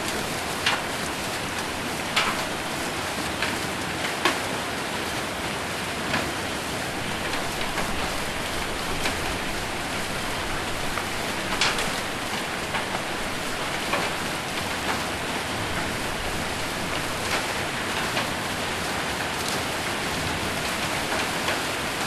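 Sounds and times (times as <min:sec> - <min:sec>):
sharp hail hits: 0:00.0 - 0:03.6, 0:06.9 - 0:18.4
rain and hail on a metal roof: 0:00.0 - 0:22.0.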